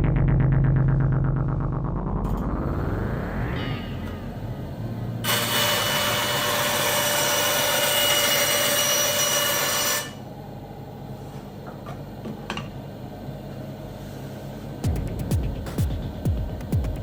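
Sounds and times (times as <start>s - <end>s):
low hum: 0.0s - 5.6s
band saw cutting: 5.2s - 10.2s.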